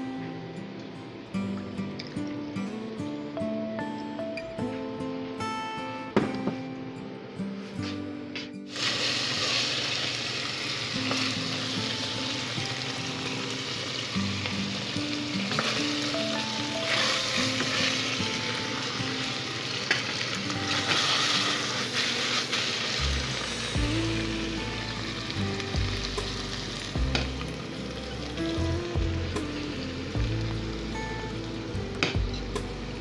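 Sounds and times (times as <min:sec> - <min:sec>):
background music: 0:00.0 - 0:33.0
pork sizzling in hot oil: 0:08.7 - 0:33.0.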